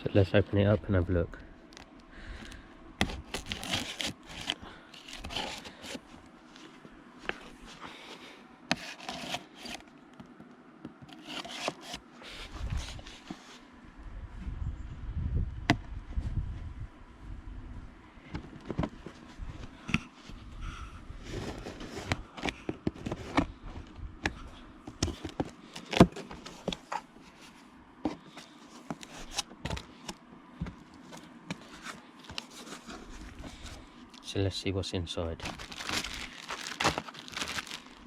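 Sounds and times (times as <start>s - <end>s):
cardboard scraping and rubbing: 3.0s - 6.6s, 8.7s - 9.8s, 11.1s - 13.6s, 21.2s - 23.6s, 25.0s - 33.9s, 35.4s - 38.0s.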